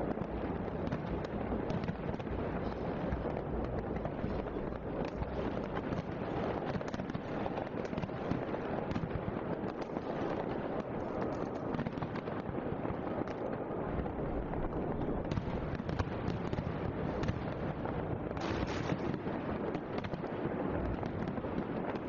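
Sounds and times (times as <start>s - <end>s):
fireworks crackling and popping: 0.0s - 22.0s.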